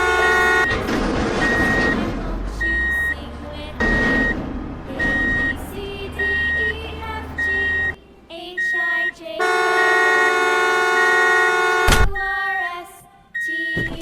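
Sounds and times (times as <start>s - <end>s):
toy reversing beeper: 6.2s - 6.8s, 7.4s - 8.0s, 8.6s - 9.2s.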